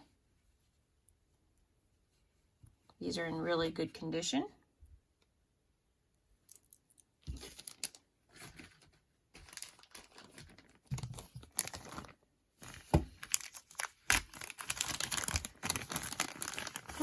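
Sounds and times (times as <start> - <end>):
packaging crinkling and rustling: 7.2 - 17.0.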